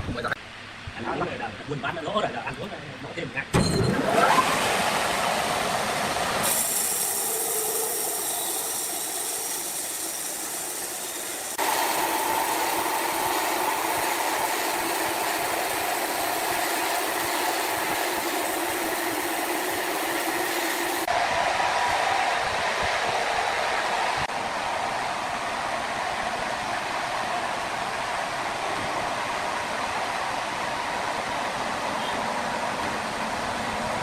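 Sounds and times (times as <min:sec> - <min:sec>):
steady machine whine: 0:03.6 - 0:21.1
sawmill machinery hissing: 0:03.8 - 0:21.1.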